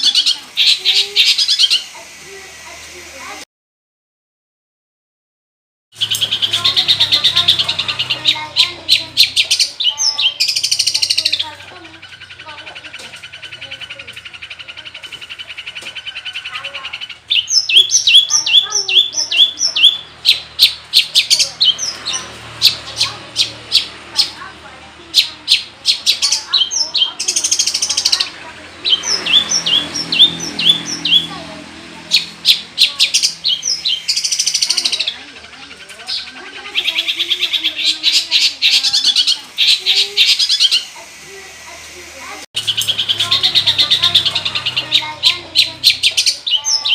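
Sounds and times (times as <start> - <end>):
bird singing: 0.0 - 2.4, 6.0 - 46.9
shrike chattering song: 0.0 - 3.4, 6.0 - 46.9.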